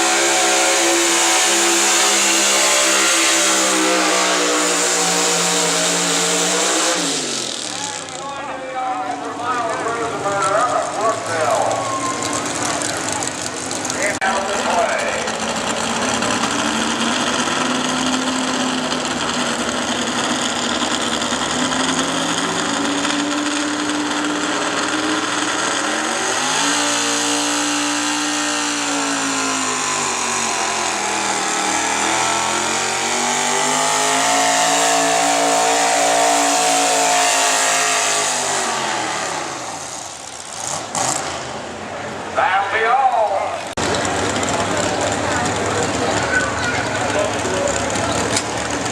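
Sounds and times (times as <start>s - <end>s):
pickup engine at full throttle: 0.0s - 48.9s.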